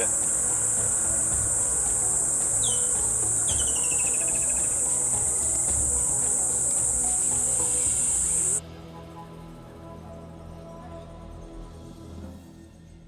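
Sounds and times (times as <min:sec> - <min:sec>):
bird calling: 0:00.0 - 0:08.6
insects droning: 0:00.0 - 0:08.6.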